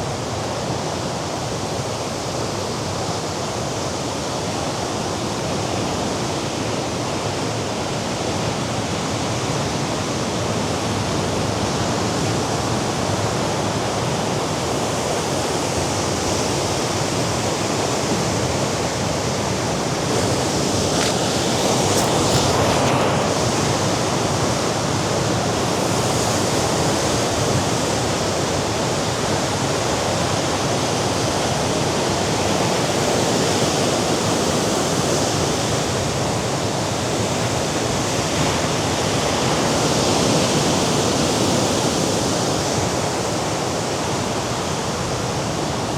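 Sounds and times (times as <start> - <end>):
sea surf on rocks: 17.0 - 28.5.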